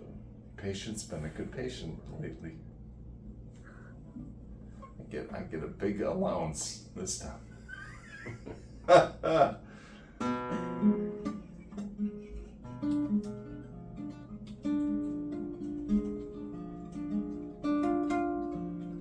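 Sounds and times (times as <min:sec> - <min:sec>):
acoustic guitar playing: 0:08.7 - 0:19.0.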